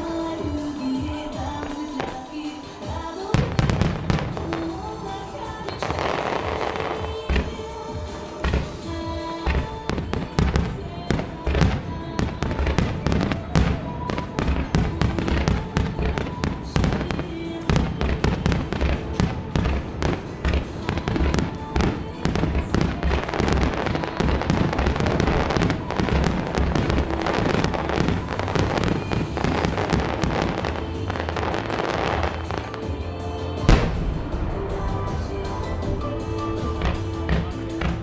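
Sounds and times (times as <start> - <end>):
fireworks bursting and crackling: 0.0 - 38.0
music: 0.0 - 38.0
sharp loud bang: 33.8 - 35.9.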